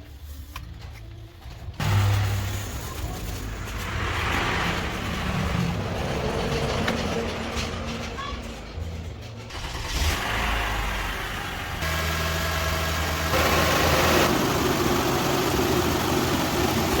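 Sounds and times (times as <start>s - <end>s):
car engine running: 1.8s - 6.3s, 9.5s - 17.0s.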